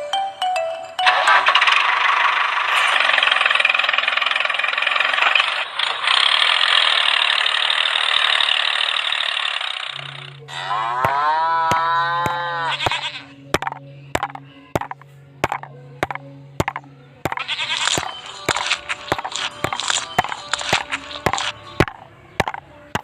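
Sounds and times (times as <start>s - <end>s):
small motor rattling buzz: 1.2s - 13.8s
low hum: 1.2s - 23.0s
bleat: 10.5s - 13.4s.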